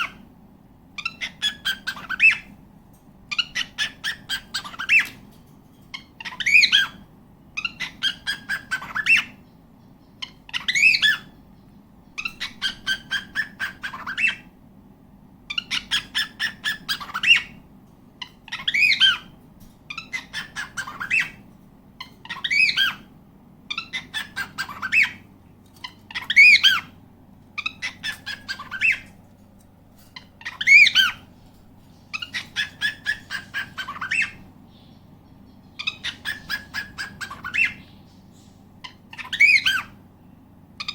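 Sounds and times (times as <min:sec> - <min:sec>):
cockatiel chattering calls: 0:01.0 - 0:02.6, 0:03.3 - 0:05.3, 0:05.9 - 0:14.5, 0:15.5 - 0:17.6, 0:18.2 - 0:23.1, 0:23.7 - 0:27.0, 0:27.6 - 0:29.2, 0:30.1 - 0:31.3, 0:32.0 - 0:34.5, 0:35.3 - 0:38.0, 0:38.8 - 0:40.0.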